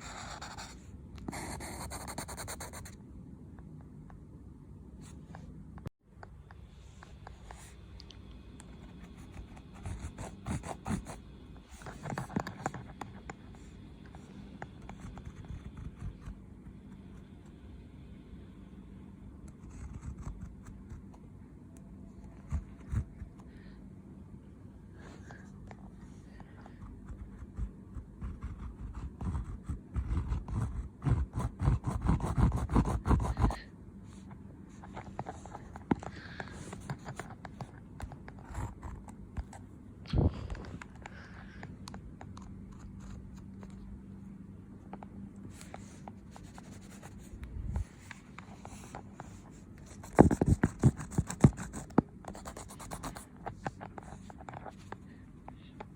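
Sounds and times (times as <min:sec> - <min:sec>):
pen scratching on paper: 0:00.0 - 0:02.9, 0:09.0 - 0:13.3, 0:14.6 - 0:16.4, 0:19.6 - 0:21.0, 0:26.7 - 0:33.6, 0:45.6 - 0:55.0.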